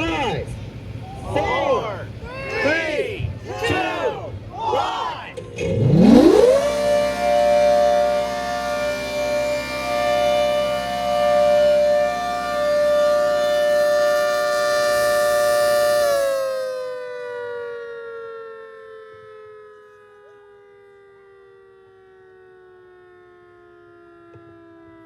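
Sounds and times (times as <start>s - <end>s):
warning siren two-note tone: 5.4s - 25.0s.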